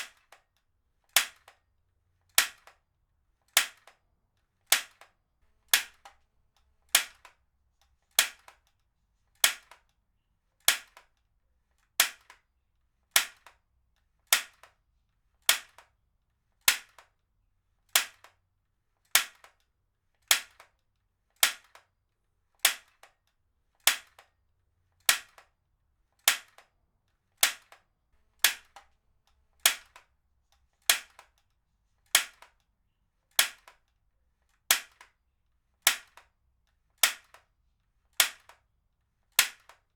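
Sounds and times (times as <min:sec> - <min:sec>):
heavy-duty stapler firing: 0:28.4 - 0:28.9, 0:29.6 - 0:30.1.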